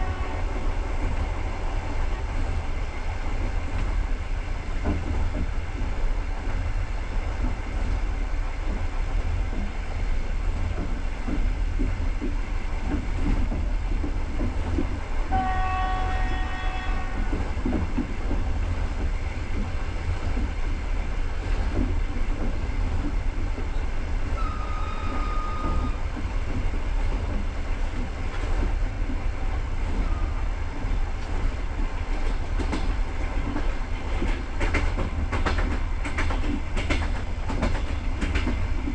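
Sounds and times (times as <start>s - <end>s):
train horn chord: 0.0s - 0.7s, 15.3s - 17.3s
train wheels clickety-clack: 0.0s - 38.9s.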